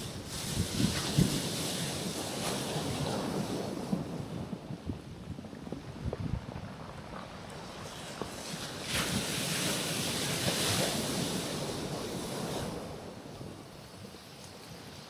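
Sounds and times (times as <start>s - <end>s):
waves breaking on rocks: 0.0s - 4.9s, 5.9s - 15.0s.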